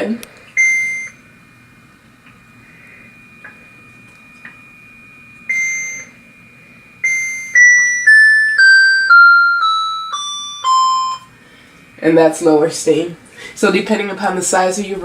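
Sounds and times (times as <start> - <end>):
electronic control-panel beeps: 0.5 - 1.3, 3.3 - 11.4.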